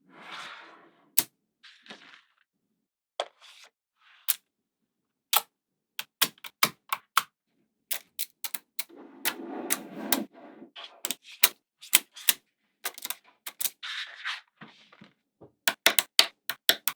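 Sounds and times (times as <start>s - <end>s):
magnetic balls clicking: 7.9s - 10.2s, 11.9s - 13.7s, 15.7s - 16.9s.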